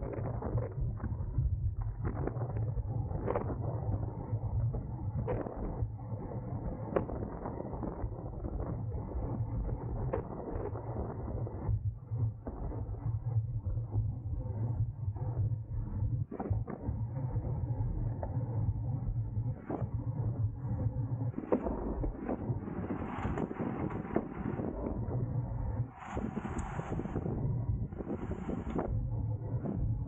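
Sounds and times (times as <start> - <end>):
wind rumble on microphone: 0.0 - 30.0
road and tyre noise: 25.8 - 27.3.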